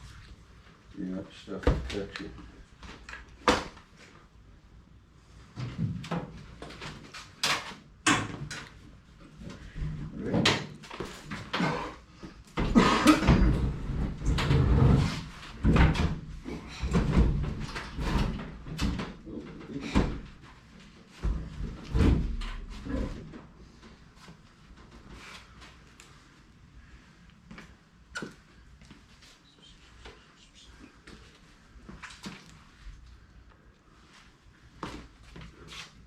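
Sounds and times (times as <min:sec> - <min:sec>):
knocks and clattering of work: 0:12.6 - 0:20.5, 0:21.2 - 0:23.5.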